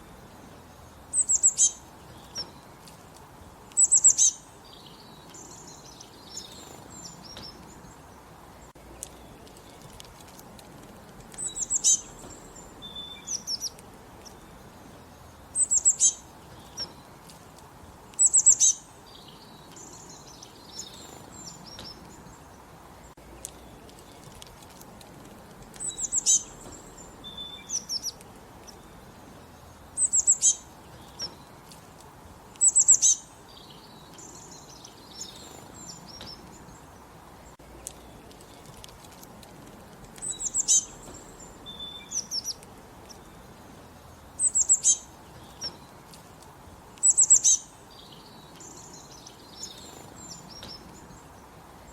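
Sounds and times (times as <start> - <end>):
soft bird chirps: 0.0 - 51.9
songbird singing: 0.0 - 51.9.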